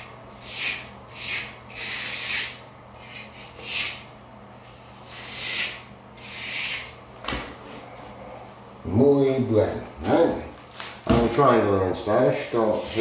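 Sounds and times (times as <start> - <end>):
trowel scraping mortar: 0.4 - 4.1, 4.7 - 6.9.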